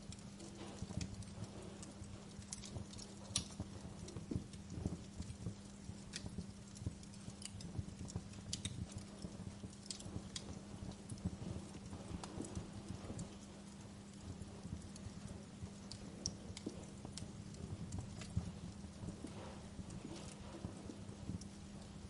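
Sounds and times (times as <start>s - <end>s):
low rumbling hiss of fire: 0.0s - 22.0s
steady low hum: 0.0s - 22.0s
wood fire crackling and popping: 0.0s - 22.0s.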